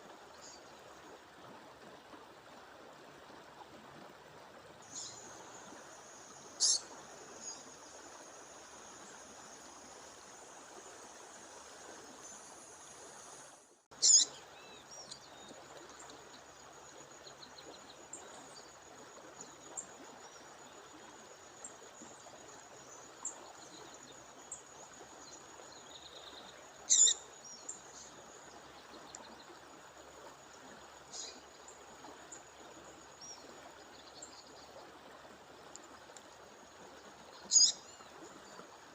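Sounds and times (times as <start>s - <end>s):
rush of falling water: 4.7s - 16.5s
bird calling high-pitched: 6.6s - 6.8s, 14.0s - 14.3s, 26.9s - 27.2s, 37.5s - 37.8s.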